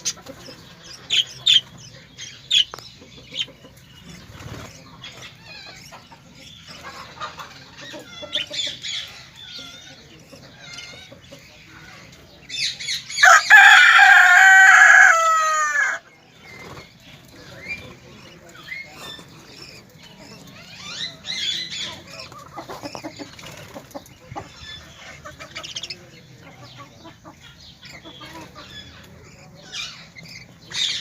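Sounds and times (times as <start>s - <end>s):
birds clucking and chirping: 0.0s - 31.0s
rooster crowing: 13.2s - 16.0s.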